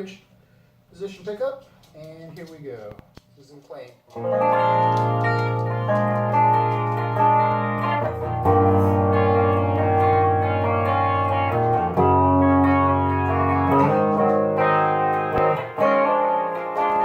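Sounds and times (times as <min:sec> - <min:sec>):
electric guitar ringing chords: 0:04.2 - 0:17.0.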